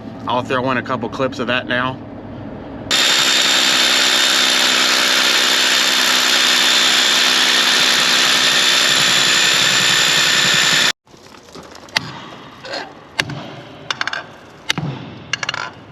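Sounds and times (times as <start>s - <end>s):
high steady whine: 0.0s - 11.0s
grain machinery running: 2.9s - 11.0s.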